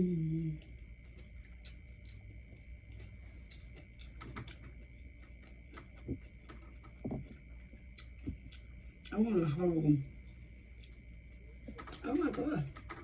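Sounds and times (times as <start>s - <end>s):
faint high whine: 0.0s - 13.0s
soft low thump: 7.0s - 7.4s.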